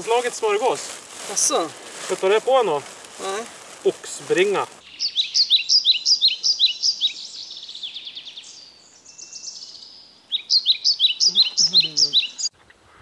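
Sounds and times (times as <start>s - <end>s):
songbird chirping and trilling: 4.3s - 12.6s.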